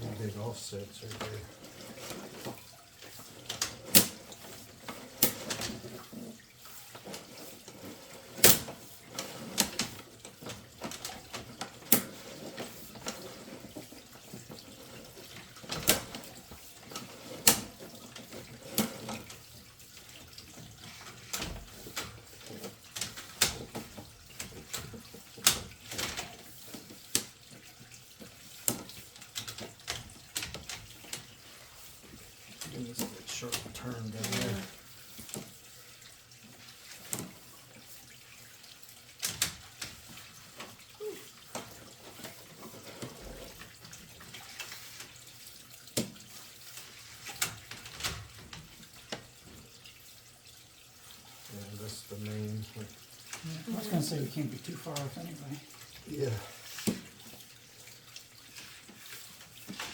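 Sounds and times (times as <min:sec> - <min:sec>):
water running and trickling: 0:00.0 - 0:59.9.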